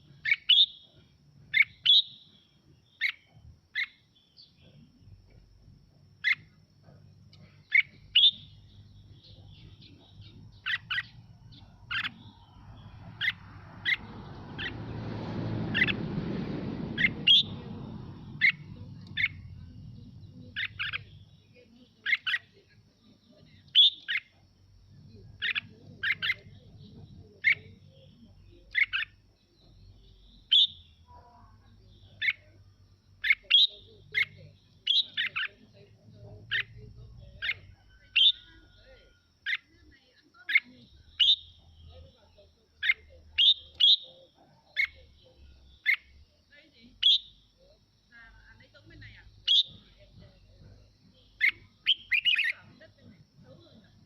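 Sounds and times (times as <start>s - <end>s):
bulbul singing bright phrases: 0.0s - 54.0s
low rushing noise: 10.3s - 21.2s.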